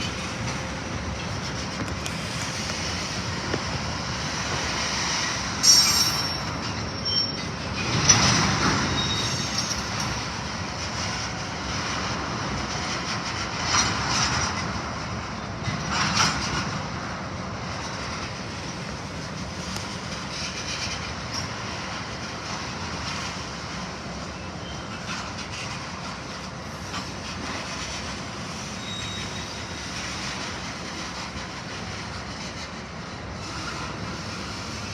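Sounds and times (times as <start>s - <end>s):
railroad cars rumbling on track: 0.0s - 34.9s
train wheels squealing: 4.3s - 10.4s, 18.5s - 23.4s, 24.2s - 34.9s.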